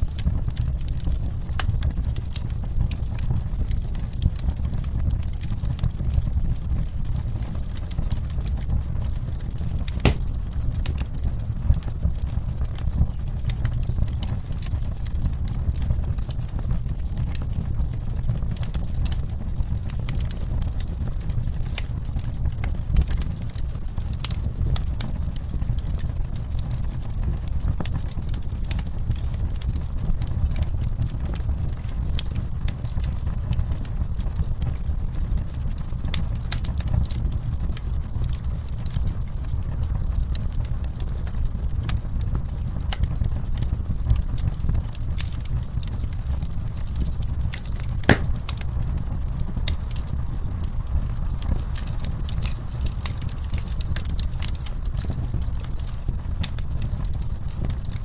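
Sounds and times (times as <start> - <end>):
wood fire crackling and popping: 0.0 - 58.0
rain falling: 48.1 - 48.6.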